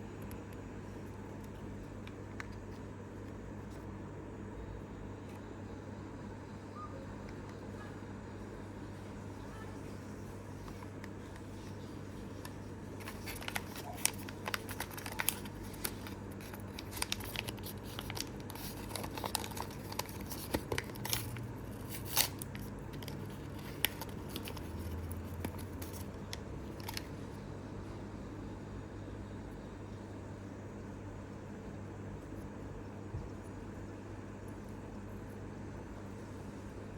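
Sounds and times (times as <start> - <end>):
steady low hum: 0.0 - 36.9
packaging crinkling and tearing: 10.6 - 27.2.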